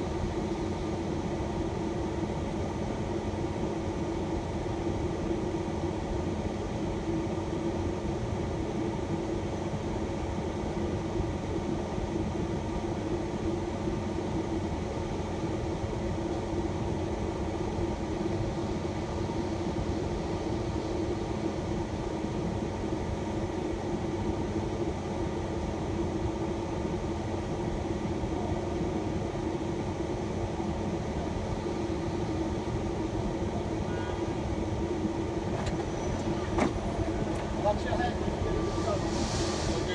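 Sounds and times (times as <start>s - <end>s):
van engine humming inside: 30.3s - 39.9s.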